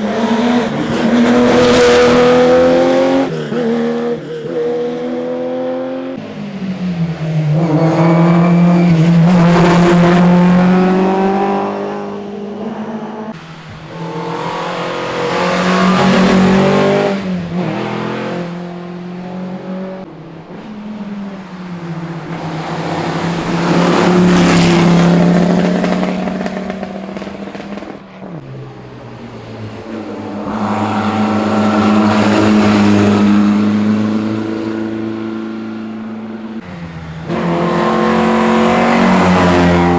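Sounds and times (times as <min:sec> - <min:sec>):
rally cars passing at speed: 0:00.0 - 0:39.9.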